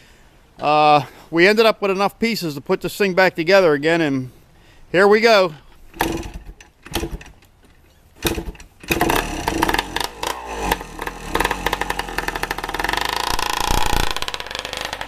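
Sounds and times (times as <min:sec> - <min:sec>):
engine start thump: 0:05.9 - 0:07.4, 0:08.2 - 0:15.0
two-stroke engine revving: 0:08.2 - 0:15.0.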